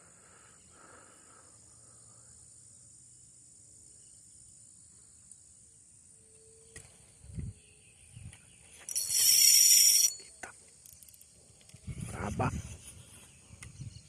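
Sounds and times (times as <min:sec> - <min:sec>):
crickets and insects chirring: 0:00.0 - 0:14.0.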